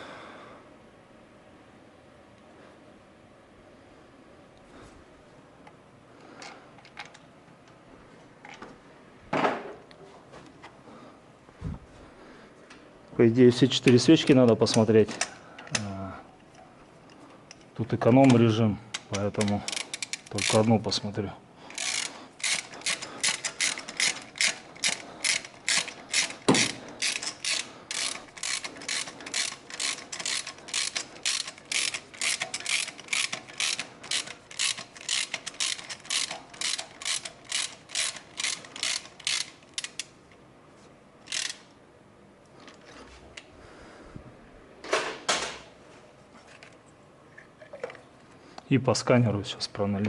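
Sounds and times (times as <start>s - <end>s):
ratchet wrench clicking: 19.2s - 20.8s, 21.7s - 40.1s, 41.2s - 41.7s.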